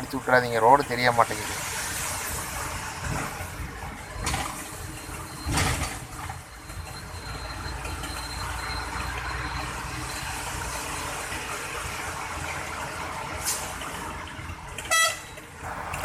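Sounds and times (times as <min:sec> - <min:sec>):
heavy rain and road spray: 0:00.0 - 0:03.8, 0:15.6 - 0:16.0
truck engine running low: 0:15.6 - 0:16.0
water swishing against truck: 0:15.6 - 0:16.0.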